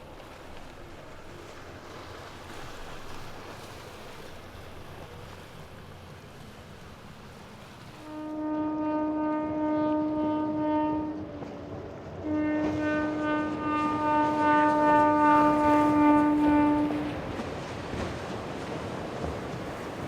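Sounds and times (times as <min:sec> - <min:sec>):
boat horn blasts: 0:08.0 - 0:17.4.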